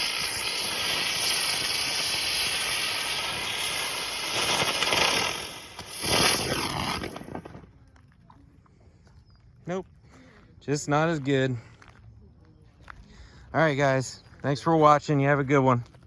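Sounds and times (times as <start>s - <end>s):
fireworks hissing and fizzing: 0.0s - 7.7s.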